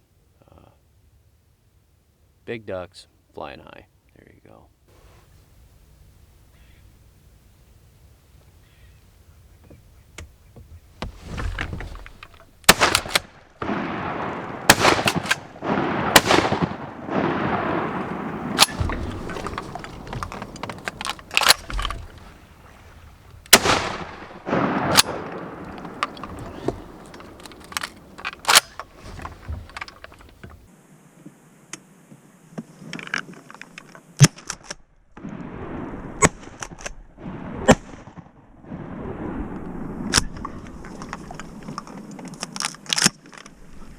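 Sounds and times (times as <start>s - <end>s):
echoing shotgun shots: 12.6s - 22.5s, 23.5s - 29.2s.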